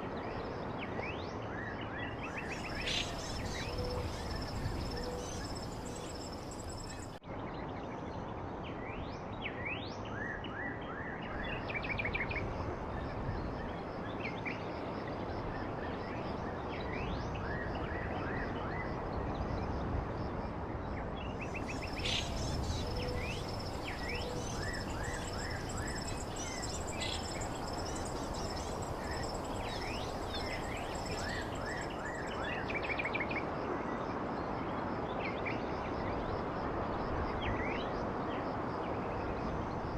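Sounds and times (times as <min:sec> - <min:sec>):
outdoor background noise: 0:00.0 - 0:39.9
small birds chirping: 0:02.4 - 0:07.2, 0:21.4 - 0:32.7.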